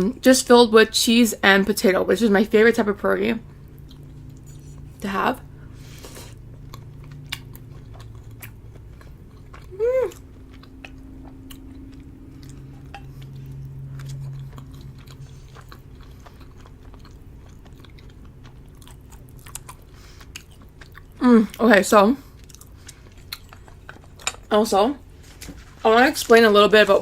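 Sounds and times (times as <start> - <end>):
person chewing food: 3.4 - 21.6, 22.2 - 24.5.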